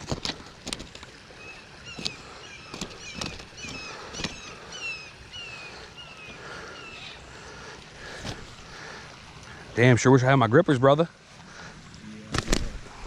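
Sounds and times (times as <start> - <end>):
small bird chirping: 1.4 - 7.3.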